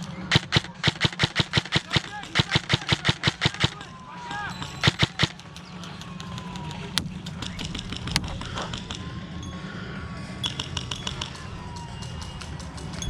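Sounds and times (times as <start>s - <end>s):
airsoft gunshots: 0.2s - 4.0s, 4.7s - 5.5s.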